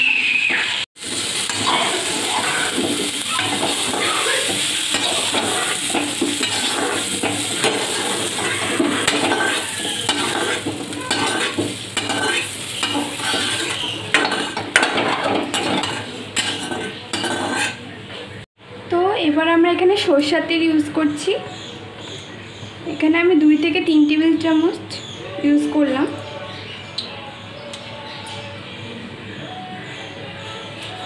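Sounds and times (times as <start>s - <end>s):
potatoes sizzling: 0.5s - 17.8s
metal spatula scraping: 1.0s - 17.9s.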